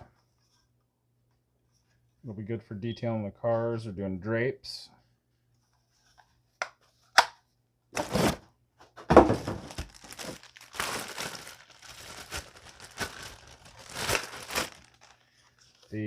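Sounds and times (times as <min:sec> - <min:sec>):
plastic packaging crinkling: 0:09.3 - 0:16.0.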